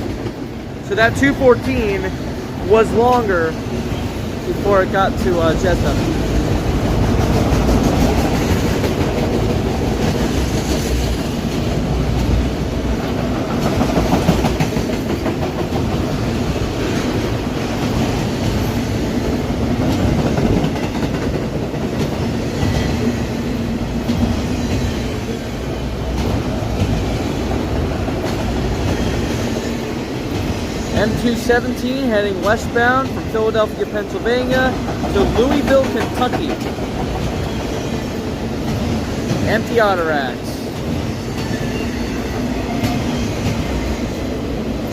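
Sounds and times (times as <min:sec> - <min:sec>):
steel wheels rumbling on rail: 0:00.0 - 0:44.9
clickety-clack of wheel clicks: 0:13.0 - 0:16.0, 0:19.8 - 0:22.8, 0:34.4 - 0:37.7.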